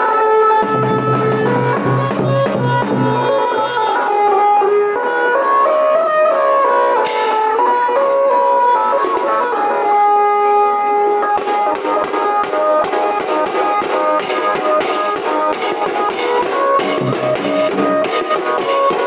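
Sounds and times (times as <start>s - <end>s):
reedy wind instrument melody: 0.0s - 19.0s
fast drum strokes: 0.6s - 3.3s, 11.4s - 19.0s.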